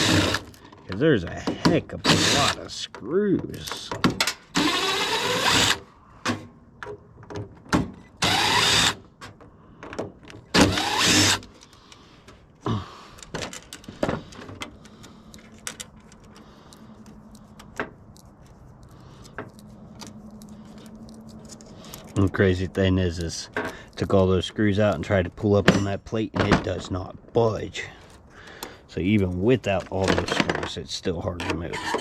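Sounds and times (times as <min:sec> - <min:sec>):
cordless drill spinning out screws: 0:00.0 - 0:00.6, 0:02.0 - 0:02.6, 0:04.5 - 0:05.9, 0:08.2 - 0:09.0, 0:10.5 - 0:11.6
clicks of screws and metal parts: 0:00.0 - 0:26.8, 0:27.9 - 0:32.0.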